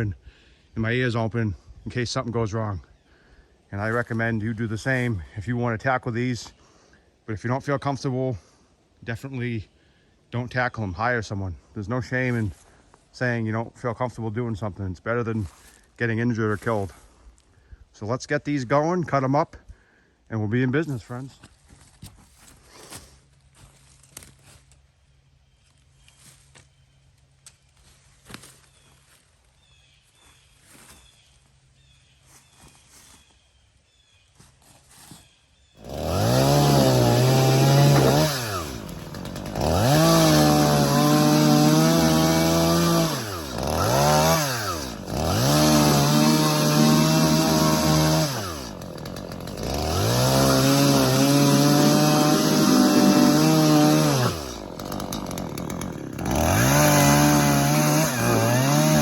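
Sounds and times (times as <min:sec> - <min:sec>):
chainsaw revving and cutting: 0:35.8 - 0:59.0.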